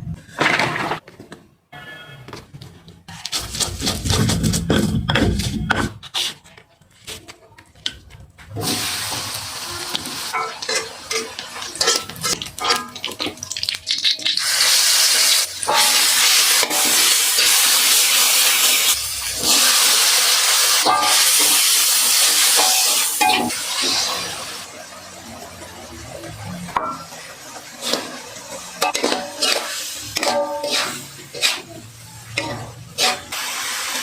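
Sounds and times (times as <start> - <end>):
oil sizzling in pan: 8.6 - 34.0
spatula scraping pan: 10.0 - 13.2, 26.7 - 34.0.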